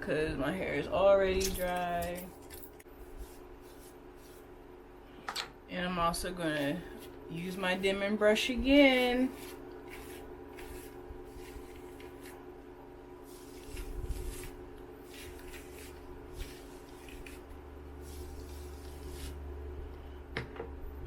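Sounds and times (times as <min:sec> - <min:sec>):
brush strokes through damp hair: 0:03.0 - 0:04.6, 0:06.5 - 0:12.5, 0:13.2 - 0:19.5.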